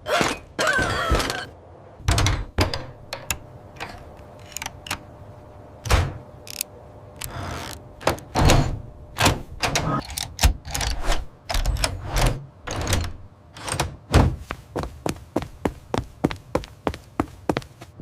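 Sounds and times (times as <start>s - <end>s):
knocks and thuds: 14.1s - 14.5s.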